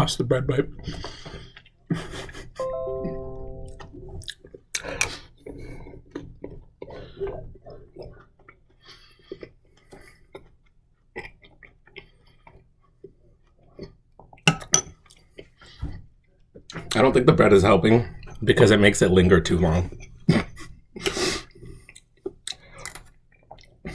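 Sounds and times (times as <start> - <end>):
spoon clinking against bowl: 14.5 - 14.9
person chewing: 21.0 - 23.8.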